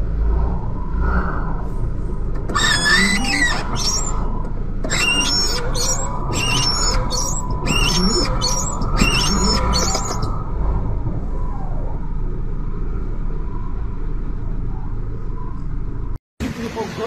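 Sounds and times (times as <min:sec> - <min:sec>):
steady low rumble: 0:00.0 - 0:16.6
birds chirping: 0:02.6 - 0:04.2, 0:04.9 - 0:10.4.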